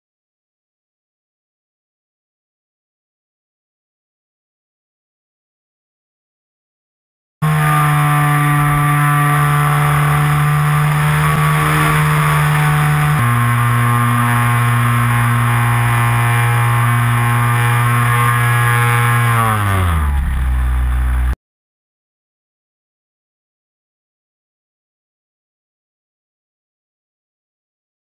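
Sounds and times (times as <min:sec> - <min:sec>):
model plane motor running: 0:07.4 - 0:21.4.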